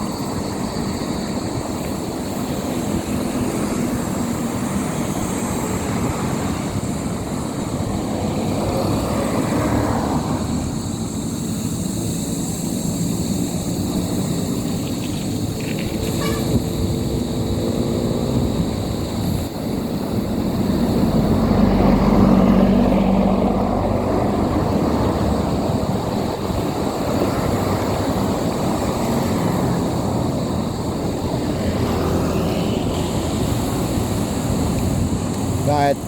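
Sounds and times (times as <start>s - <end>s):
wind noise: 0.0s - 36.0s.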